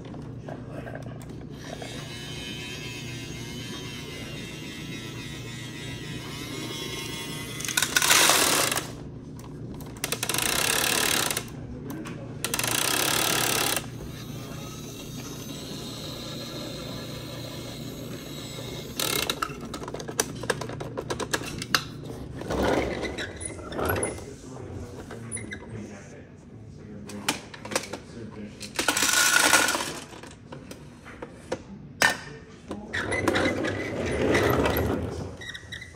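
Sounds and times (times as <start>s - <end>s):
toy truck mechanism whirring: 1.5s - 9.0s, 9.8s - 11.6s, 12.4s - 21.9s, 28.7s - 30.4s.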